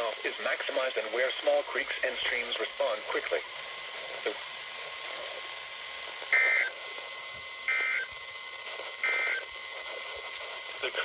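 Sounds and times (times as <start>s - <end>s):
radio hiss: 0.0s - 11.0s
two-tone digital data bursts: 6.3s - 6.8s, 7.7s - 8.2s, 9.0s - 9.5s.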